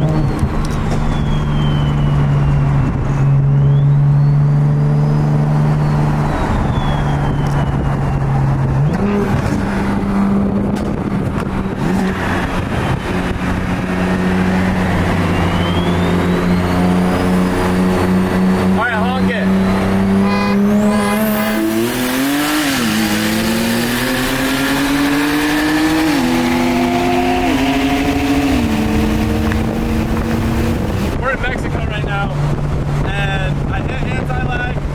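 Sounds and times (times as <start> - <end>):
car engine running steady revs: 8.2 - 34.9.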